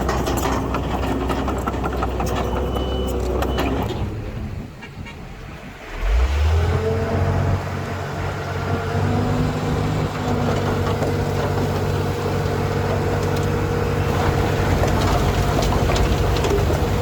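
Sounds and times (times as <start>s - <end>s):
diesel engine running: 5.9s - 17.0s.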